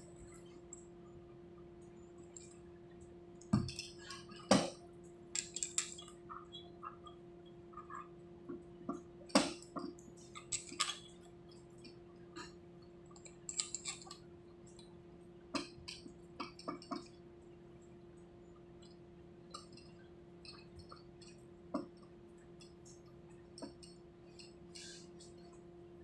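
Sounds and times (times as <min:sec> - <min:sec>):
steady hum: 0:00.0 - 0:26.0
metal parts and tools clinking: 0:05.4 - 0:06.1, 0:13.2 - 0:14.2.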